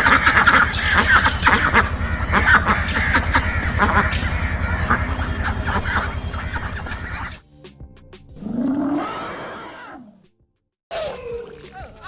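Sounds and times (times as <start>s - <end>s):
birds calling: 0.0s - 7.4s, 8.4s - 10.0s
low pulsing drone: 0.0s - 7.4s.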